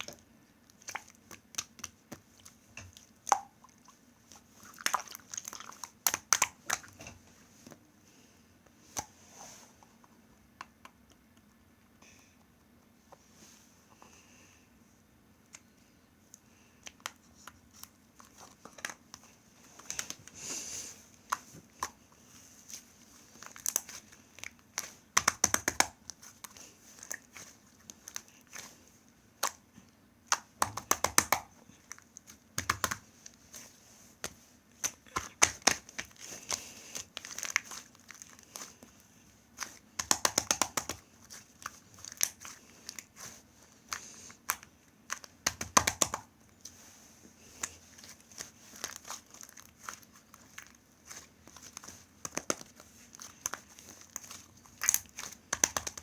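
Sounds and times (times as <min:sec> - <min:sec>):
slime crackling and popping: 0:00.0 - 0:07.1, 0:23.3 - 0:28.7, 0:34.2 - 0:46.3, 0:47.6 - 0:56.0.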